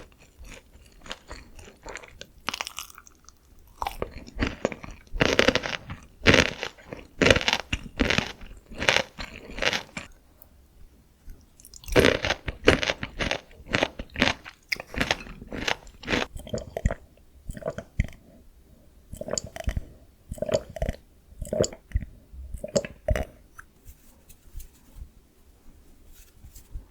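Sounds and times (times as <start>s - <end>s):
crunching and chewing fried chicken: 0.0s - 10.2s, 11.6s - 18.2s, 19.1s - 23.4s.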